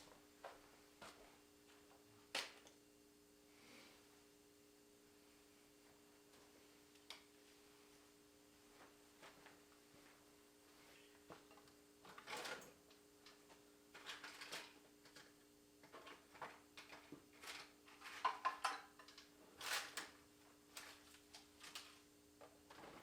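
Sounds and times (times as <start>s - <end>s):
faint steady hum: 0.0s - 23.0s
metal tools clinking in toolbox: 12.1s - 12.8s.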